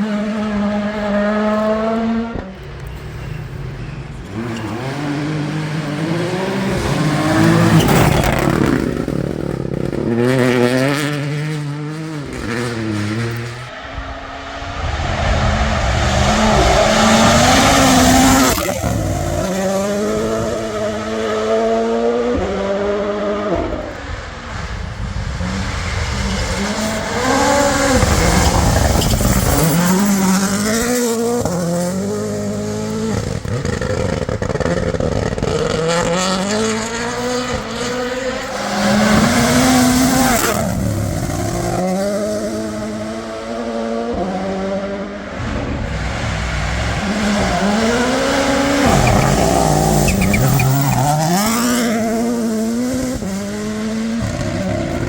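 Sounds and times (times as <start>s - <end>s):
rally car engines revving: 0.0s - 55.0s.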